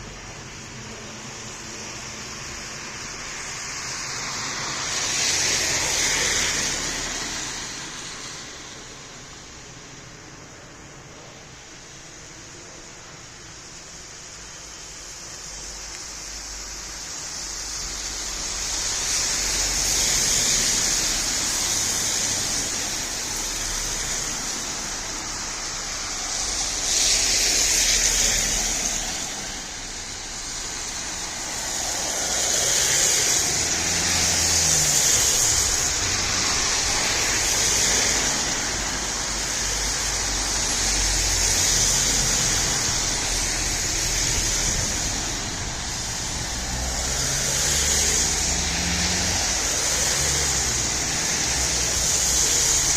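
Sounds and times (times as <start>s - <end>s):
vehicles passing: 0.0s - 52.9s
engine passing by: 17.3s - 52.9s.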